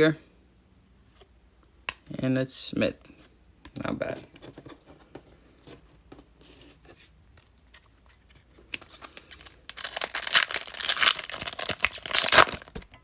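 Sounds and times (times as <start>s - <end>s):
foil wrapper tearing and crinkling: 9.0s - 12.8s.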